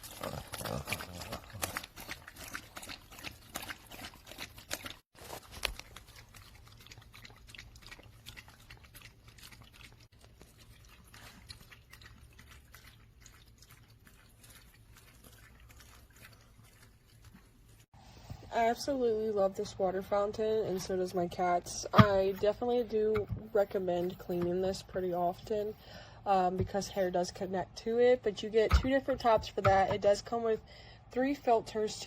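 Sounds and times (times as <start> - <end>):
cat lapping water: 0.0 - 17.9.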